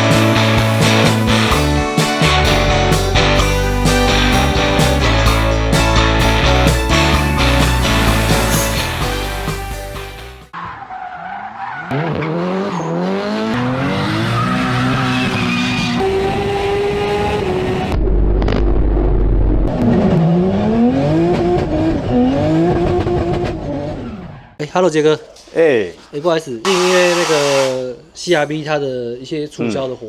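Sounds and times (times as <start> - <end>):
car engine revving: 11.9 - 18.0, 26.7 - 27.8.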